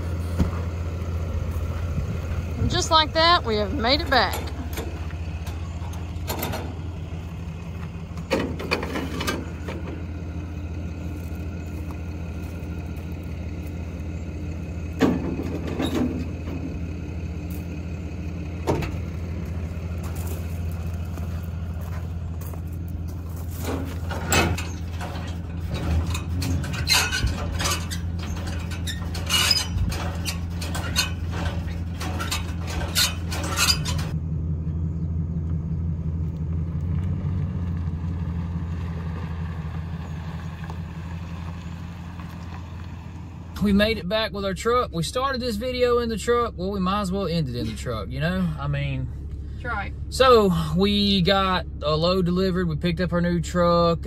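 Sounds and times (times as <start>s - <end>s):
diesel engine droning: 0.0s - 54.0s.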